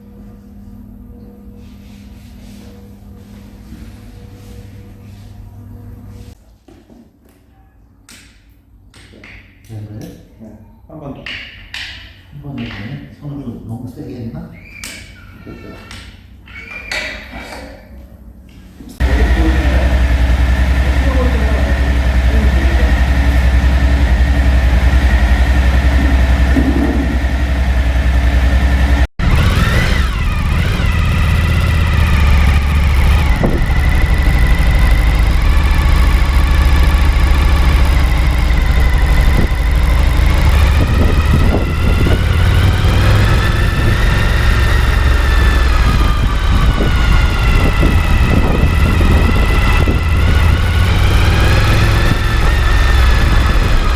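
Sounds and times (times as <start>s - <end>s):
motorcycle engine idling: 19.0s - 53.9s.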